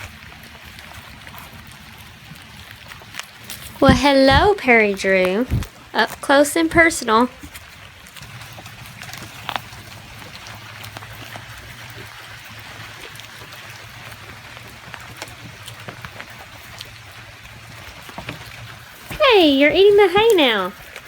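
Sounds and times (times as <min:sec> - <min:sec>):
light rain falling: 0:00.0 - 0:21.0.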